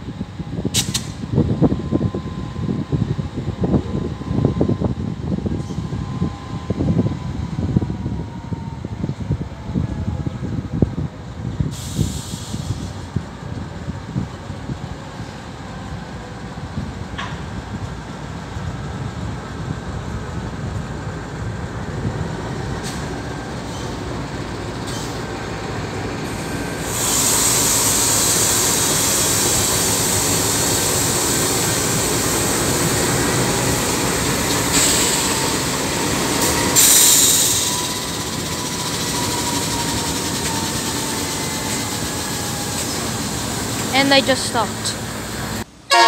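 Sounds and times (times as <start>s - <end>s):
train low rumble: 0.0s - 46.0s
faint brake squeal: 5.5s - 6.6s, 23.6s - 24.1s, 24.8s - 25.3s
brakes and wheels hissing: 11.6s - 13.6s, 22.7s - 45.7s.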